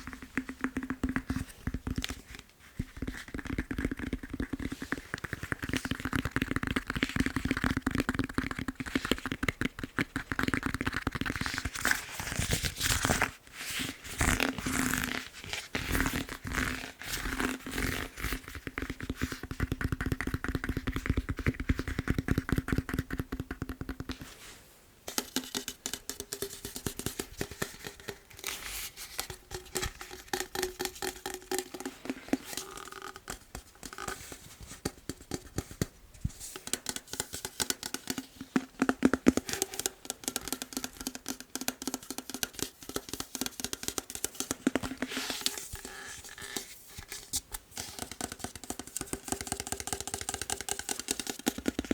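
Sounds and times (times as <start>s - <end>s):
fingernails tapping on foam roller: 0.0s - 11.3s, 18.2s - 24.3s, 25.1s - 28.3s, 36.6s - 45.1s, 48.0s - 51.9s.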